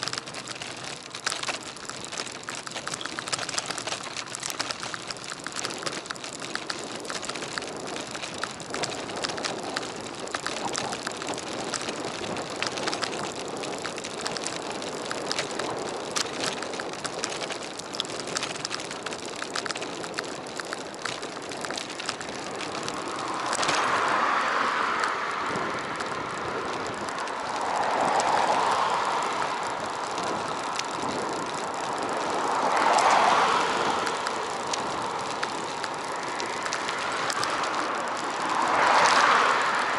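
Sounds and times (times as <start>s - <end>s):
road and wind noise: 0.0s - 39.9s
small rattling clicks: 0.0s - 39.9s.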